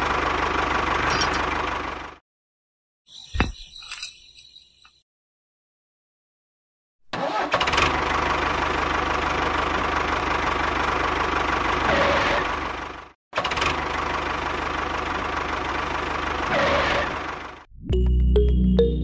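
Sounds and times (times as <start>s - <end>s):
tractor engine running: 0.0s - 2.2s, 7.2s - 19.0s.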